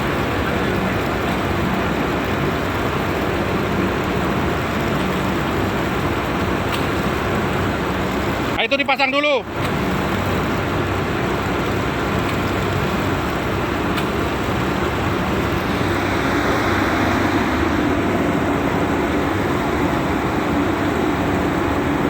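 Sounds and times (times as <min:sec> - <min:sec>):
ship engine droning: 0:09.8 - 0:22.0.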